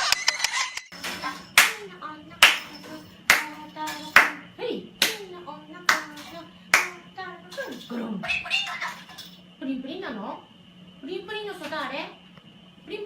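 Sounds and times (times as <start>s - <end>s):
hand claps in steady beat: 1.0s - 1.8s, 2.4s - 4.4s, 5.0s - 5.2s, 5.9s - 7.0s.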